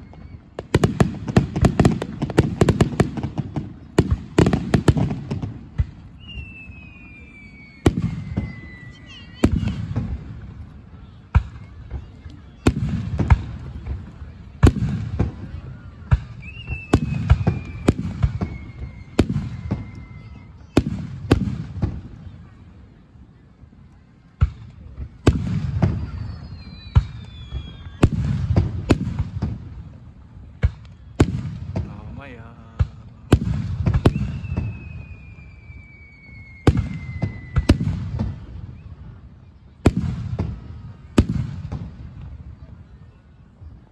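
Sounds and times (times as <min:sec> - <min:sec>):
falling firework whistle: 0:00.0 - 0:03.2, 0:05.3 - 0:10.2, 0:14.9 - 0:22.0, 0:25.3 - 0:29.6, 0:30.6 - 0:32.1, 0:32.8 - 0:41.8
fireworks bursting with booms: 0:00.0 - 0:22.9, 0:24.1 - 0:43.0.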